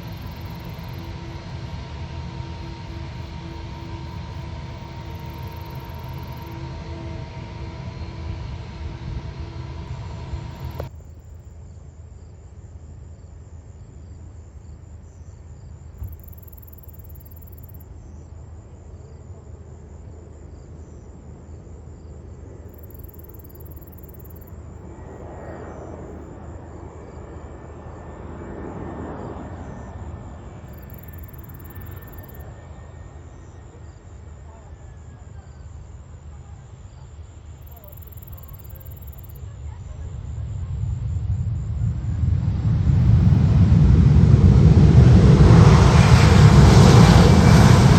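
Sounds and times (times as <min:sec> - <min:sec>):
distant jet aircraft rumbling: 0:00.0 - 0:11.1, 0:22.8 - 0:34.4, 0:37.6 - 0:47.9
insects chirping: 0:00.0 - 0:43.8.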